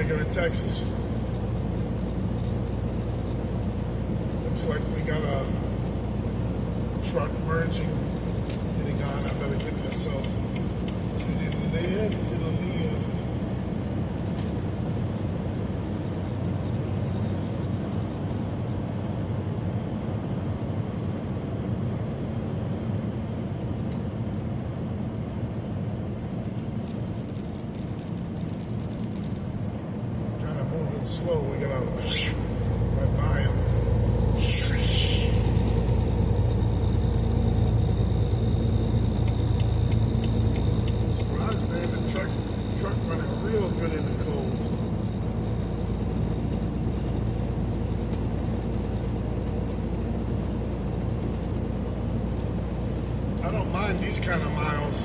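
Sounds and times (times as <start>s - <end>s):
truck engine rumble: 0.0s - 55.0s
tyre road noise: 0.0s - 55.0s
faint light ticking: 35.3s - 42.8s.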